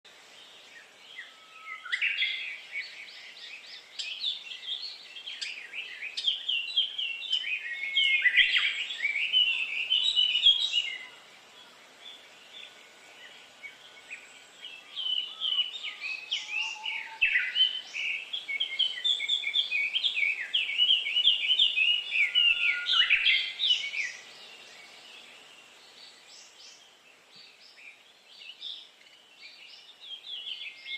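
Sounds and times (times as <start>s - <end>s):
songbird chirping and twittering: 0.1s - 30.9s.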